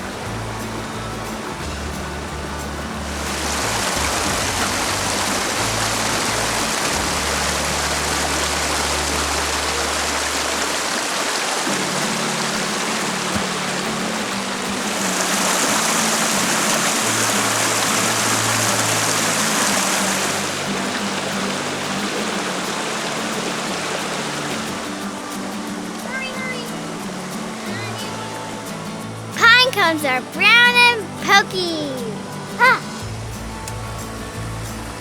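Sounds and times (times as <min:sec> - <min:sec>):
background music with low bass: 0:00.0 - 0:10.7, 0:26.7 - 0:35.0
stream water rushing: 0:00.0 - 0:35.0.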